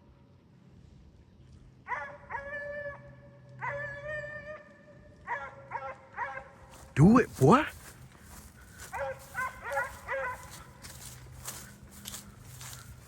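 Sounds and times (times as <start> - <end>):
hounds baying: 5.3 - 6.6, 8.3 - 11.6.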